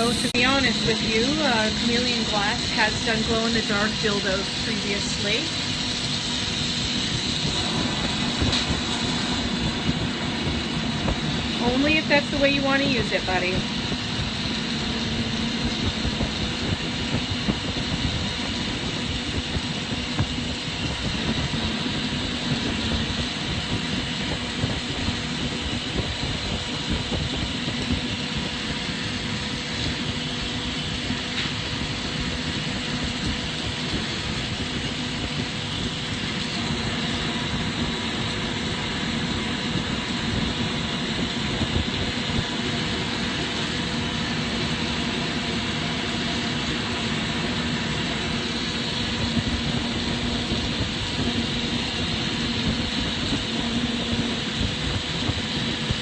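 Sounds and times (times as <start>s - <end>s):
low hum: 0.0s - 56.0s
torch flames roaring: 0.0s - 56.0s
ventilation rushing: 0.0s - 56.0s.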